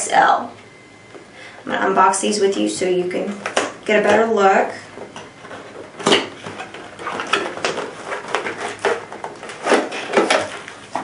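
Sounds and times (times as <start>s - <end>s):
packaging rustling and scraping: 4.9s - 11.0s.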